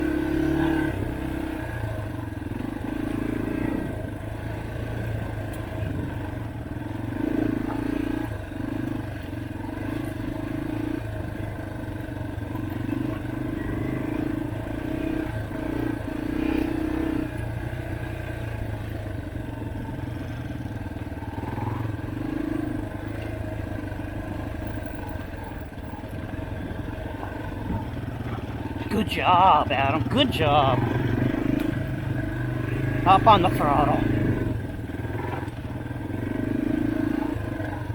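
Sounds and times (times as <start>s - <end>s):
dirt bike engine revving: 28.7s - 35.5s.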